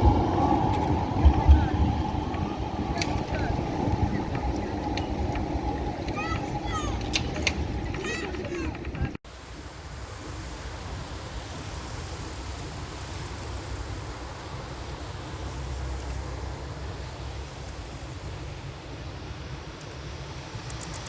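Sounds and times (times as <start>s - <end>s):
distant traffic rumble: 0.0s - 9.2s
wind on microphone: 0.0s - 9.2s.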